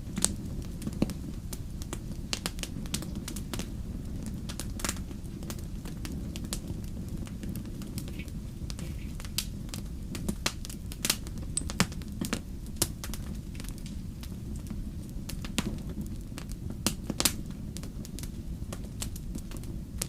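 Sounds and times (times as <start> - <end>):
campfire crackling and popping: 0.0 - 20.0
low rumble of flames: 0.0 - 20.0.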